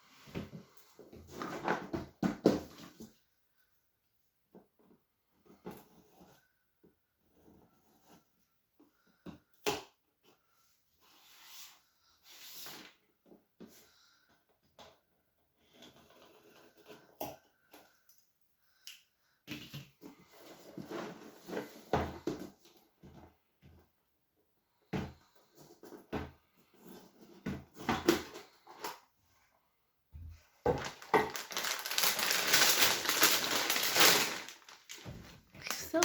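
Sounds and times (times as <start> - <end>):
packaging rustling: 30.6 - 36.0.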